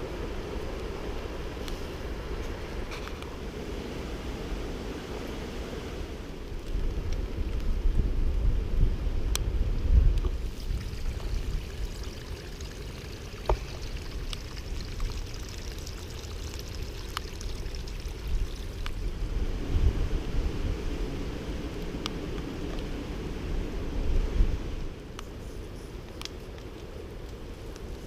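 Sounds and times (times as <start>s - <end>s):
wind buffeting microphone: 0.0s - 12.6s, 13.2s - 28.0s.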